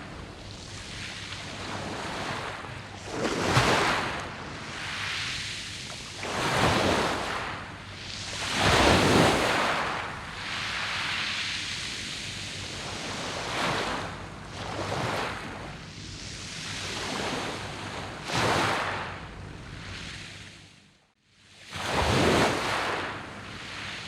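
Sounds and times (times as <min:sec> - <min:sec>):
waves breaking on pebbles: 0:00.6 - 0:15.5, 0:21.7 - 0:23.3.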